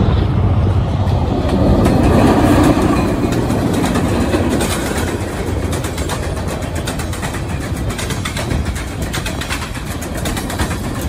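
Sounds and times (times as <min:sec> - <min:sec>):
freight train rumbling past: 0:00.0 - 0:11.0
wheels clattering and clicking: 0:01.0 - 0:11.0.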